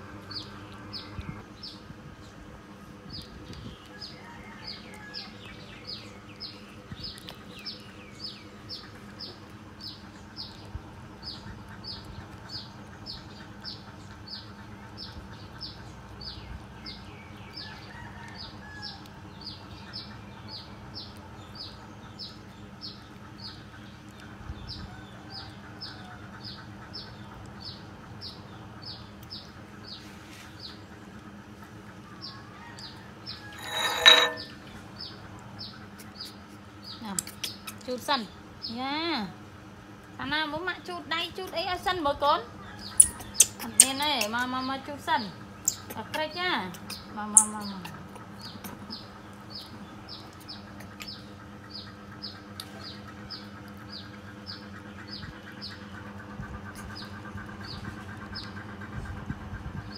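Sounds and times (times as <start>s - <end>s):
small bird chirping: 42.7s - 44.8s, 45.5s - 56.0s.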